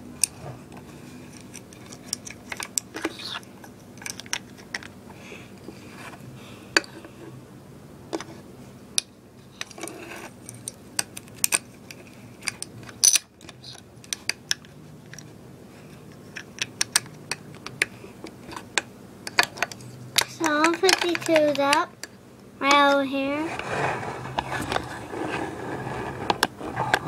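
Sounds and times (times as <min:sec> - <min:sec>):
plastic toys clicking and tapping: 0:16.3 - 0:17.9, 0:18.5 - 0:23.0.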